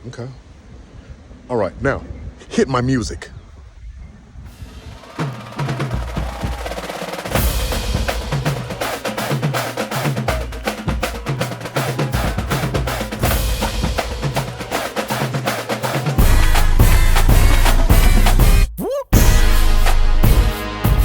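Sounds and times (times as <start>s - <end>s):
theme music with driving drum beat: 4.6s - 21.0s.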